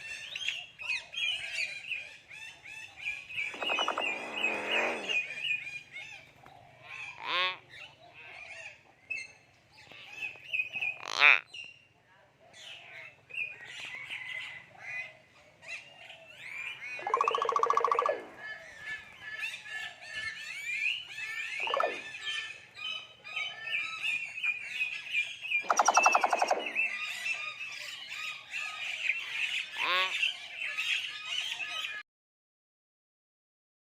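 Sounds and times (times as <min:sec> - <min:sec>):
myna whistles and chirps: 0:03.4 - 0:05.6, 0:17.0 - 0:18.3, 0:25.5 - 0:27.4
myna harsh buzzy squawks: 0:03.5 - 0:05.3.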